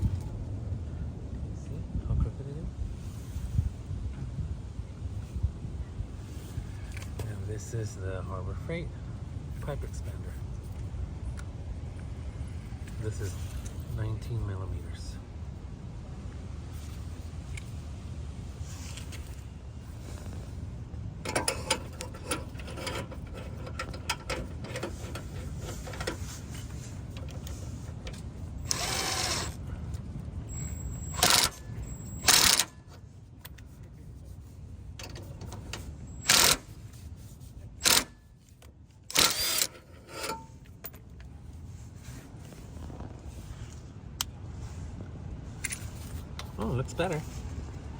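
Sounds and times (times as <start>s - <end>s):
impact driver bursts: 28.7s - 29.5s, 32.2s - 32.7s, 39.1s - 40.3s.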